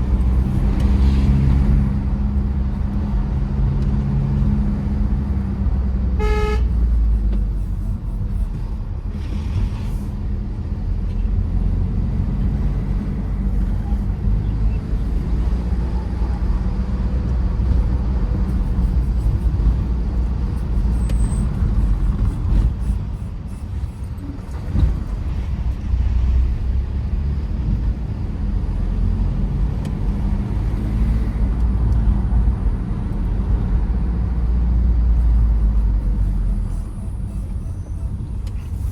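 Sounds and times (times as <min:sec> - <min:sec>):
diesel engine and tyres rumbling: 0:00.0 - 0:38.9
car horn toot: 0:06.2 - 0:06.9.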